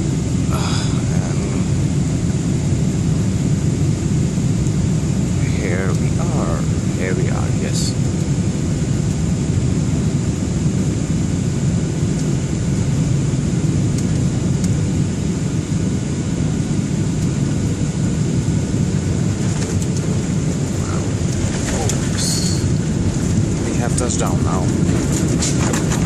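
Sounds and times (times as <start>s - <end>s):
rushing air: 0.0s - 9.5s, 16.9s - 26.0s
low rumble of jet engines: 0.0s - 26.0s
thin high whine: 19.5s - 25.8s.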